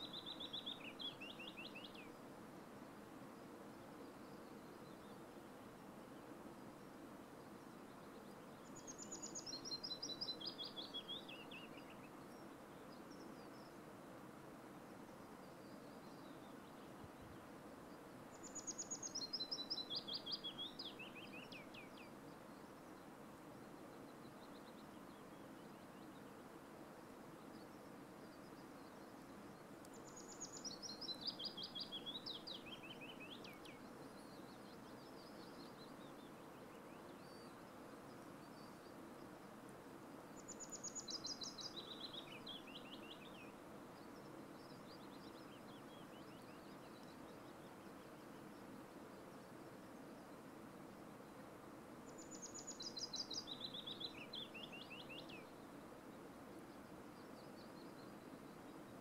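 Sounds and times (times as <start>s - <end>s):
songbird singing: 0.0s - 13.9s, 14.9s - 59.0s
faint steady hiss: 0.0s - 59.0s.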